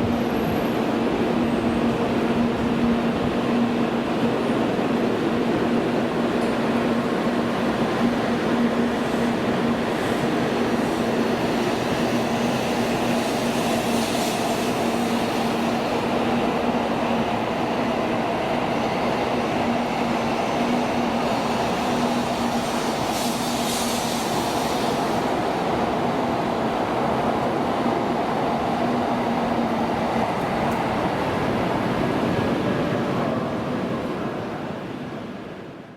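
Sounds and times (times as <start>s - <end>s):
train rail rumble: 0.0s - 35.7s.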